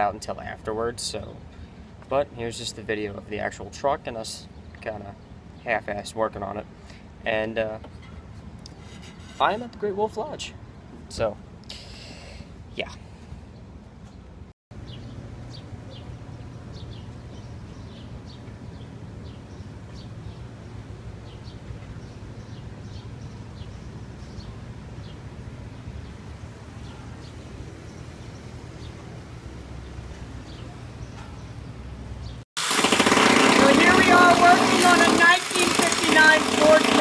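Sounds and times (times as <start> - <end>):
small birds chirping: 12.8 - 32.4.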